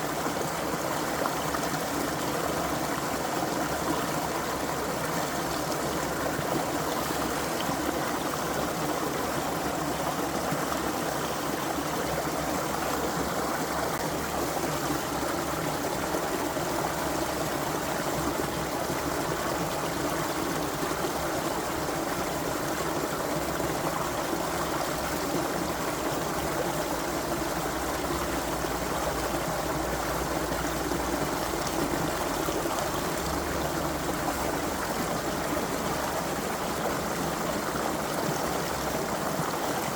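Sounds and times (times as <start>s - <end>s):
brook water running: 0.0s - 39.9s.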